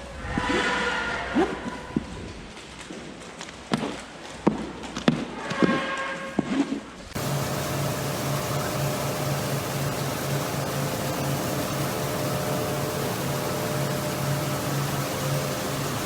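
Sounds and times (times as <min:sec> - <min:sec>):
machinery hiss: 0:07.2 - 0:16.0
pulsing low hum: 0:07.2 - 0:16.0.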